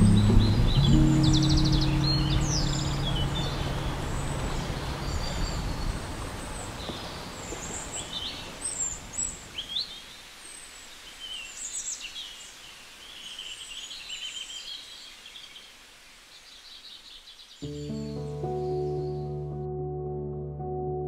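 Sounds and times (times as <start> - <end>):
background music low notes: 0.0 - 5.1, 17.6 - 21.0
birds chirping: 0.0 - 19.4.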